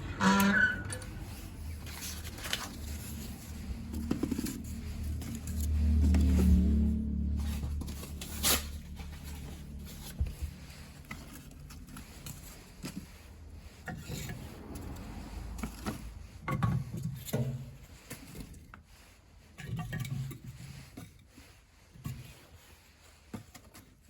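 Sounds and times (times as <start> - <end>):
wood scraping and rubbing: 0.0 - 21.1.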